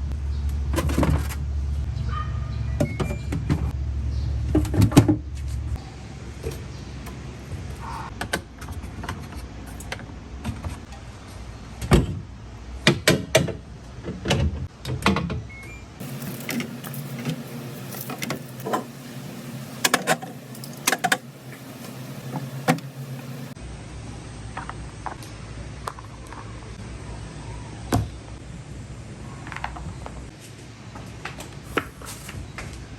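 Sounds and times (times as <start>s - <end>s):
low steady hum: 16.0s - 24.4s
objects knocking and clicking: 19.8s - 22.9s.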